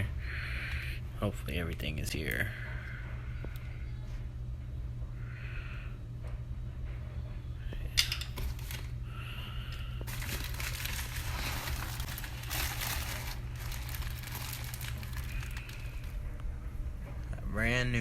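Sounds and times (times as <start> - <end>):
packaging crinkling and rustling: 8.0 - 9.0, 10.0 - 16.2.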